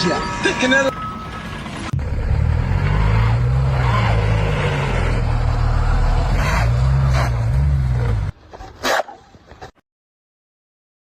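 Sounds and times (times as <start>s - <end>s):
heavy engine revving: 1.2s - 8.3s.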